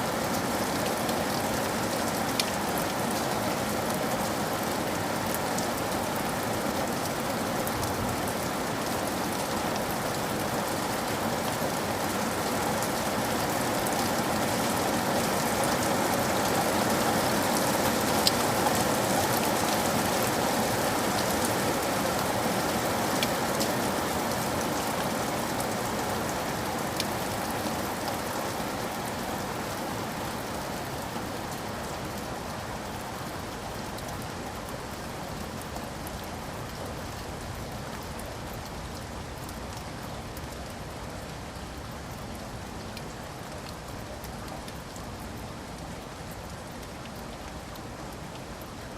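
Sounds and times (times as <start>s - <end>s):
rain falling: 0.0s - 48.9s
rain drop ticks: 0.8s - 4.0s, 17.8s - 19.8s, 33.7s - 48.9s.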